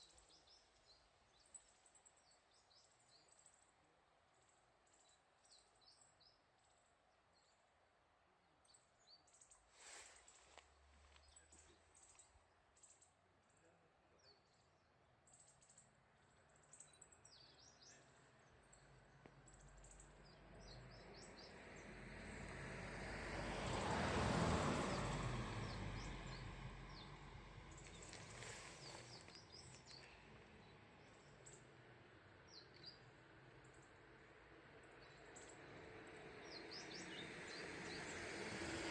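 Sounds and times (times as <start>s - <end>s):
small birds chirping: 8.6s - 21.9s, 25.6s - 38.9s
vehicle passing: 20.8s - 32.2s, 34.4s - 38.9s.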